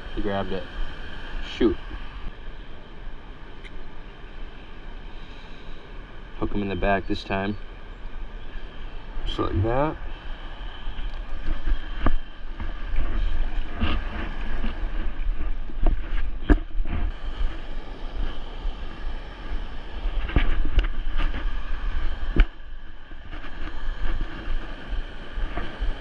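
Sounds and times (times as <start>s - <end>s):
wind buffeting microphone: 8.1s - 26.0s.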